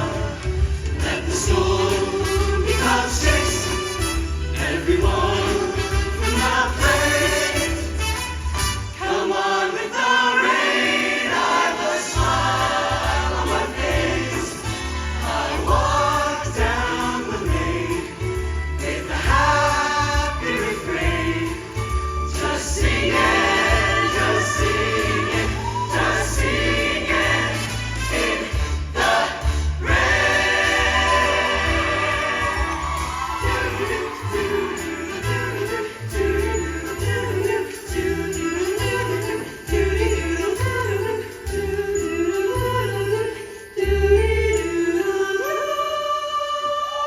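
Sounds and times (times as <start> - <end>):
group of voices singing: 0.0 - 8.1, 8.9 - 47.0
instrumental accompaniment: 10.4 - 41.9.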